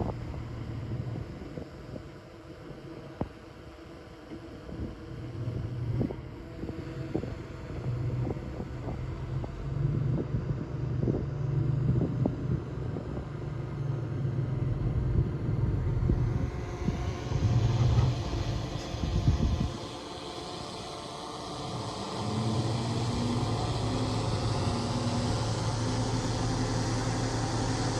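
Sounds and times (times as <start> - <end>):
bulldozer diesel engine under load: 0.0 - 1.2, 21.4 - 27.9.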